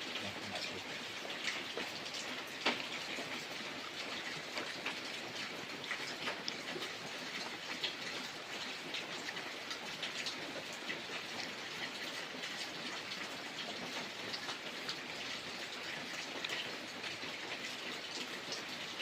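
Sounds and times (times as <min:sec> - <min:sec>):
raindrops ticking on a surface: 0:00.0 - 0:19.0
steady rain: 0:00.0 - 0:19.0.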